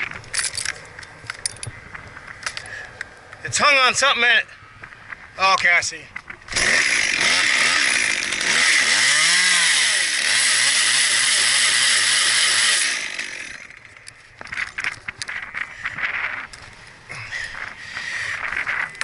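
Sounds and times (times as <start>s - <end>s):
chainsaw cutting wood: 6.5s - 14.9s.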